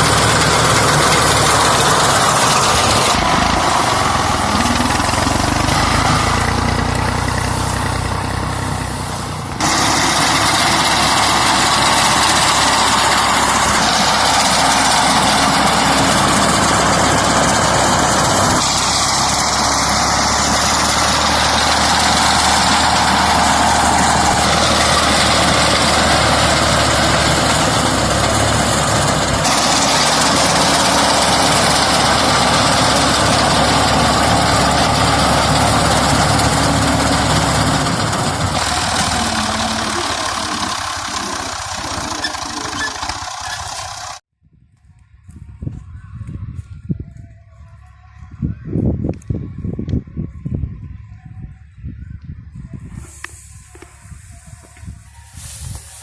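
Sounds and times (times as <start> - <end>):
harvesting machinery drone: 0.0 - 44.2.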